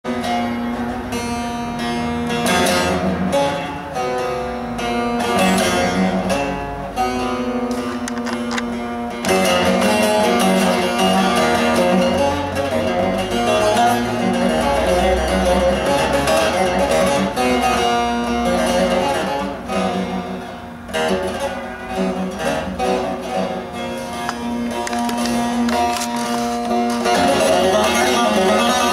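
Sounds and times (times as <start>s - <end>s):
plucked lute melody: 0.0s - 28.9s.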